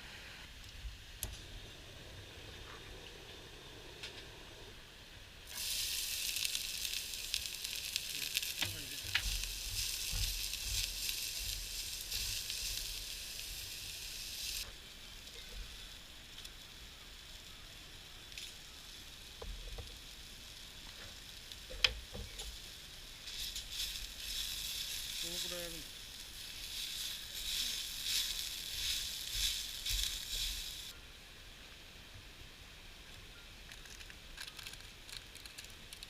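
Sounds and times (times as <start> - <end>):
food sizzling in a pan: 5.4 - 31.0.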